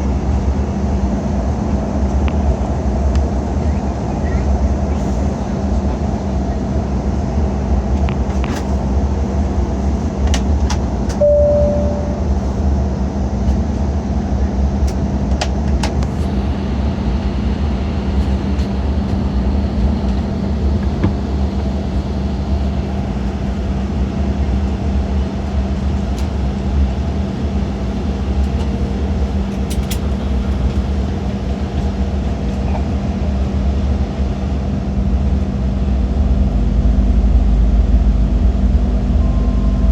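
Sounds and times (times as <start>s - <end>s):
airliner cabin engine drone: 0.0s - 39.9s
short single tone: 11.2s - 12.6s, 39.0s - 39.9s.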